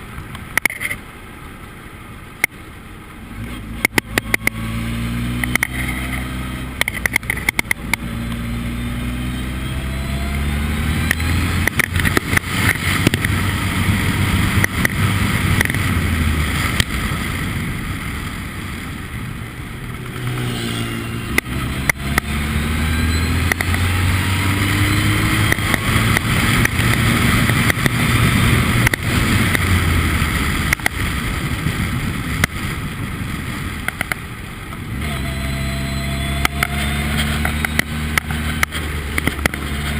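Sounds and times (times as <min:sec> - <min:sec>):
race car engine revving: 0:03.3 - 0:17.7, 0:19.8 - 0:30.8, 0:34.9 - 0:39.9
sharp clicks: 0:06.8 - 0:08.4, 0:23.4 - 0:23.9.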